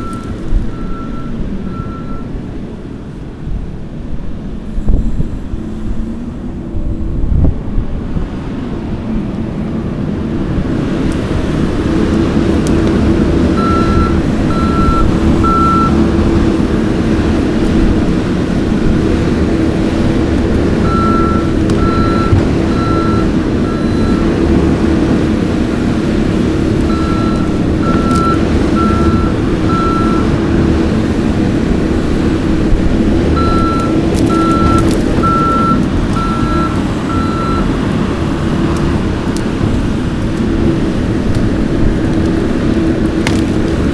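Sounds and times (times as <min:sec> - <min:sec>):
backup alarm beeping: 0:00.0 - 0:02.3, 0:12.8 - 0:16.6, 0:19.8 - 0:25.2, 0:25.8 - 0:31.0, 0:33.2 - 0:37.8
diesel engine running: 0:00.0 - 0:43.9.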